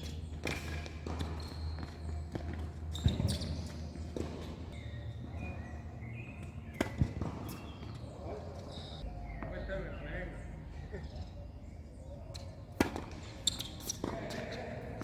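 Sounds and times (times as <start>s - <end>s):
tennis ball impacts: 6.1s - 8.5s, 12.7s - 15.0s.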